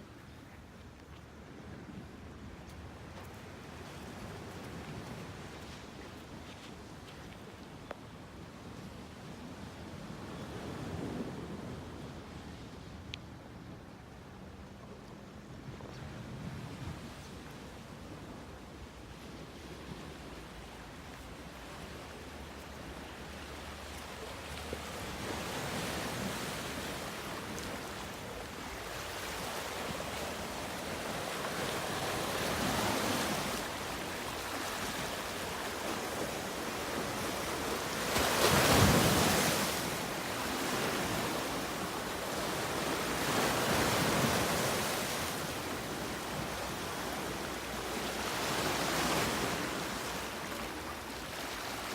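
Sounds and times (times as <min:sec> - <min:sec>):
surf washing onto beach: 0:22.2 - 0:51.9.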